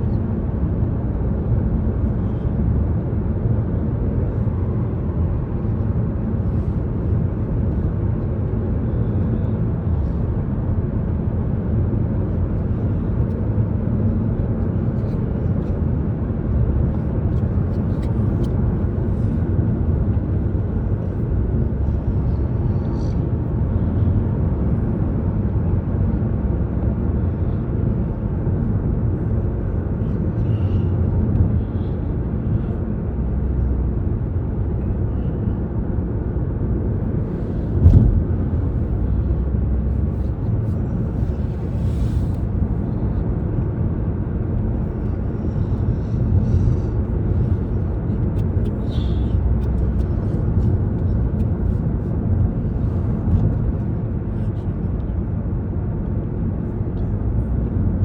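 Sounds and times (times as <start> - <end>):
car road and engine rumble: 0.0 - 58.0
sharp thump: 37.8 - 38.6.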